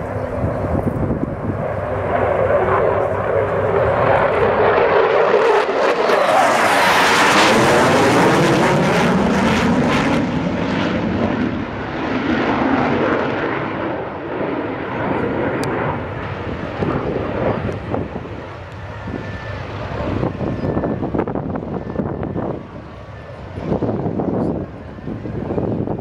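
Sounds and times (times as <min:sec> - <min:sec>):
jet engines passing overhead: 0:00.0 - 0:26.0.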